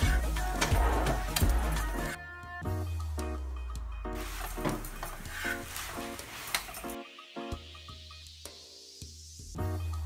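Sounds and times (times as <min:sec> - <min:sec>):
background music: 0:00.0 - 0:10.0
metal spatula scraping: 0:04.2 - 0:07.0.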